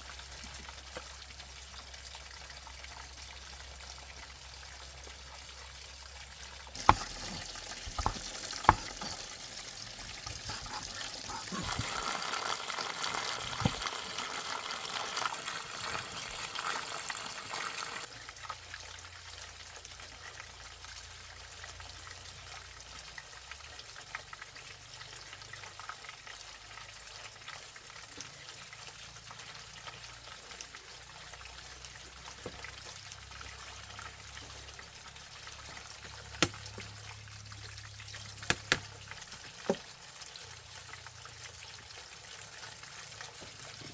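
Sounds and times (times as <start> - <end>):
running water: 0.0 - 18.1, 26.2 - 43.9
sharp knocks: 6.8 - 9.0.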